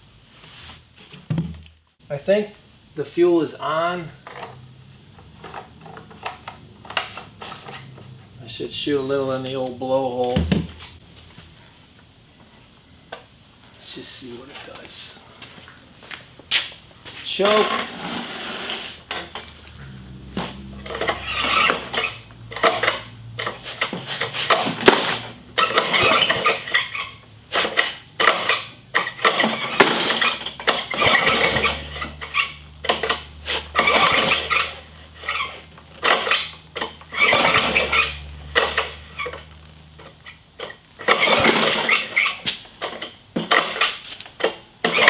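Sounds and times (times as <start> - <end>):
lawn mower pull-start: 4.2 - 8.2, 17.4 - 45.0
lawn mower engine running rough: 17.4 - 44.1.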